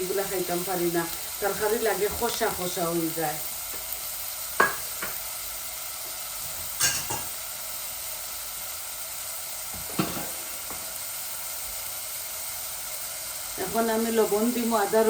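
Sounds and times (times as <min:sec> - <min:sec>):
onion sizzling in hot oil: 0:00.0 - 0:15.0
spoon knocking against pot: 0:04.6 - 0:05.2.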